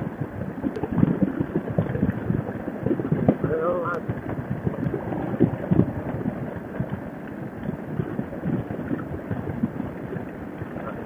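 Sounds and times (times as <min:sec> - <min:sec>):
wind buffeting helmet microphone: 0:00.0 - 0:11.0.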